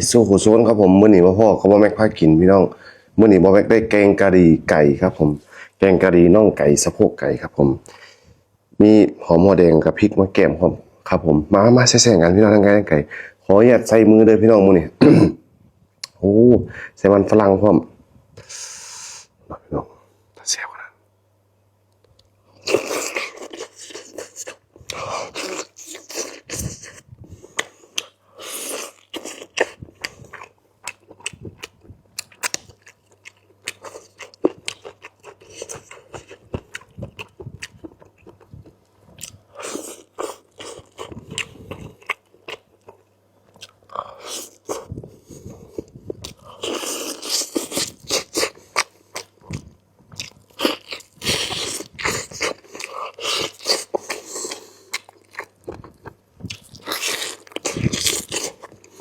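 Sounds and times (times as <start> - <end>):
faint electrical hum: 0.0 - 59.0
wet chewing and crunching: 22.6 - 45.0, 45.7 - 59.0.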